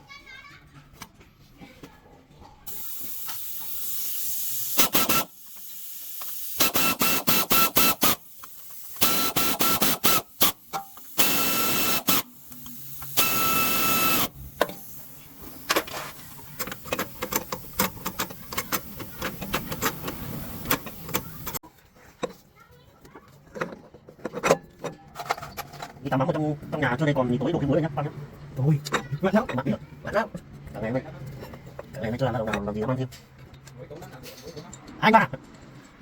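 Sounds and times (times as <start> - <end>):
pressurized hissing bursts: 2.7 - 21.6.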